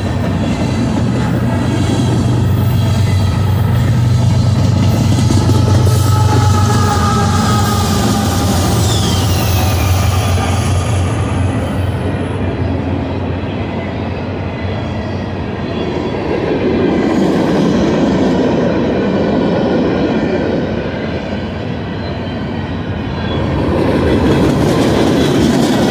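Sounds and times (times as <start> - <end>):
freight train wheels rumbling: 0.0 - 25.9
wheels clickety-clack over joints: 23.8 - 25.9.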